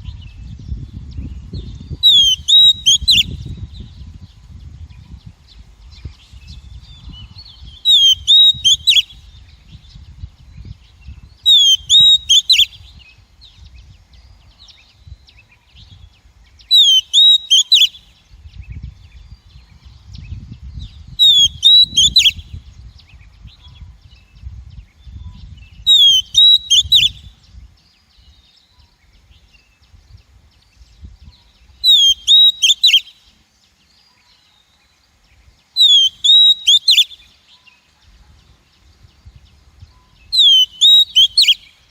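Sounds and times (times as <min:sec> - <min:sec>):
magpie-robin calling: 0:02.0 - 0:03.4, 0:07.7 - 0:09.2, 0:11.5 - 0:12.8, 0:16.6 - 0:18.1, 0:21.2 - 0:22.4, 0:25.8 - 0:27.3, 0:31.4 - 0:33.3, 0:35.7 - 0:37.5, 0:40.2 - 0:41.9.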